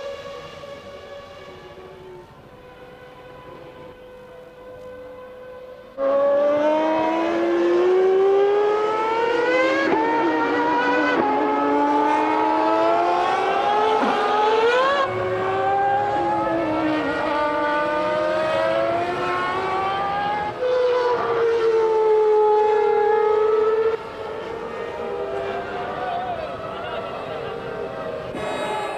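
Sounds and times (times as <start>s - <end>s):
faint steady engine note: 0.0s - 6.0s
racing car engines revving high: 0.0s - 28.9s.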